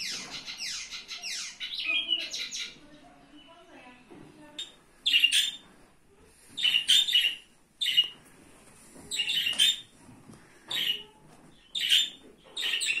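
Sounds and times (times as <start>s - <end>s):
bird chirping in bursts: 0.0s - 3.6s, 4.6s - 5.6s, 6.6s - 8.2s, 9.1s - 9.9s, 10.7s - 13.0s.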